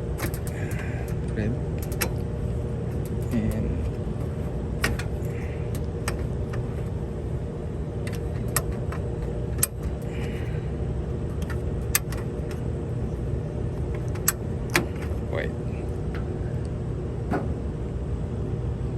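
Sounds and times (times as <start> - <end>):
low engine-like rumble: 0.0 - 18.9
small metallic clicks and taps: 0.2 - 1.2, 1.8 - 2.2, 2.9 - 6.9, 8.0 - 10.3, 11.3 - 12.6.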